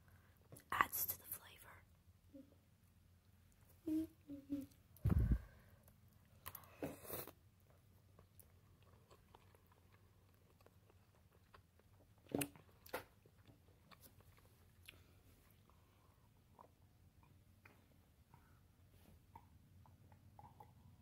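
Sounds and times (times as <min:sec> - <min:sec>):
person chewing food: 0:06.2 - 0:18.6.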